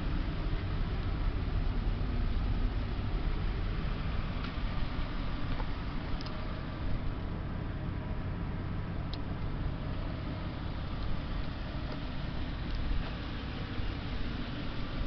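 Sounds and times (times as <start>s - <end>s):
pickup engine idling: 0.0s - 15.0s.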